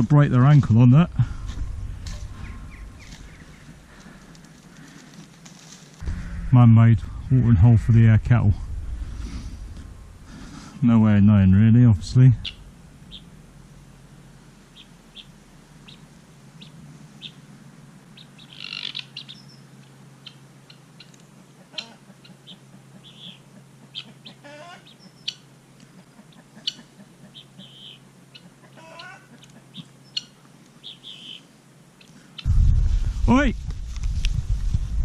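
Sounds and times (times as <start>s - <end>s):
faint low hum: 0.0s - 21.3s
small birds chirping: 1.4s - 5.2s, 12.4s - 13.8s, 14.5s - 17.5s, 18.1s - 32.5s.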